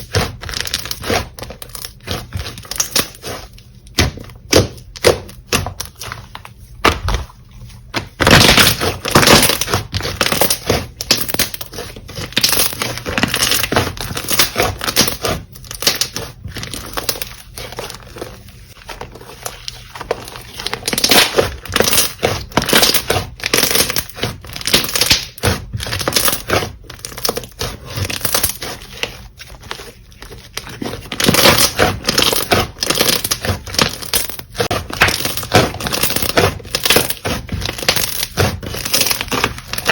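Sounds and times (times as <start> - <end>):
slime crackling and popping: 20.5 - 28.8.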